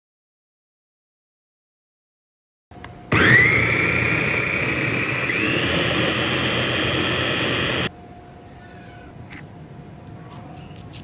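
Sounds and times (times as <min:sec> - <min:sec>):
electric food chopper whining: 0:03.1 - 0:07.9.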